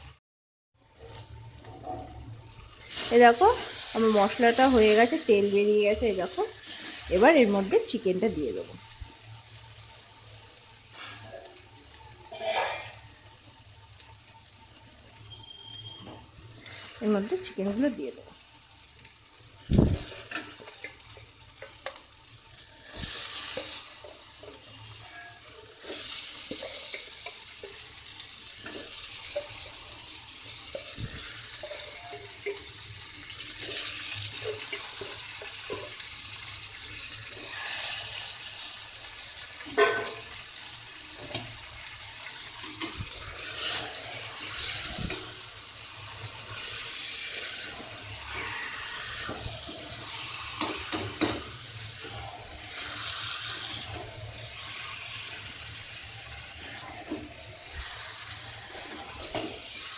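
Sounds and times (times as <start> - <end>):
chicken sizzling in hot oil: 0.0 - 0.2, 0.8 - 59.9
metal spatula scraping a pan: 12.2 - 13.1, 22.6 - 36.0, 37.2 - 38.8, 39.6 - 40.4, 42.5 - 55.7, 56.3 - 59.9.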